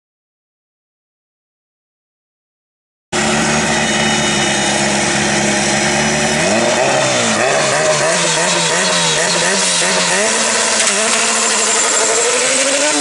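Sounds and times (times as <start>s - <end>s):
car engine idling and revving: 3.2s - 13.0s.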